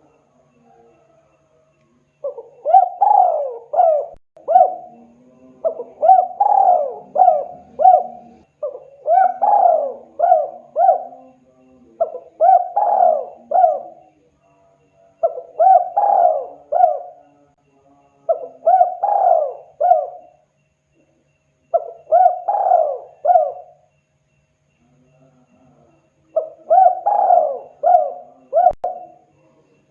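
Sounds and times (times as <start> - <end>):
dove cooing: 2.2 - 14.2, 15.2 - 17.4, 18.3 - 20.4, 21.7 - 23.9, 26.3 - 29.2.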